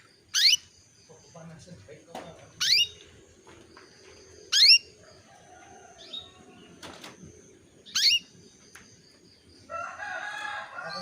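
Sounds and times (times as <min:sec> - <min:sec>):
faint chirp: 0:00.0 - 0:01.7, 0:02.5 - 0:09.8
canary giving rising calls: 0:00.3 - 0:00.6, 0:02.6 - 0:03.0, 0:04.5 - 0:04.9, 0:07.9 - 0:08.3
bird warbling: 0:00.3 - 0:00.7, 0:02.6 - 0:03.0, 0:04.5 - 0:04.9, 0:07.9 - 0:08.3.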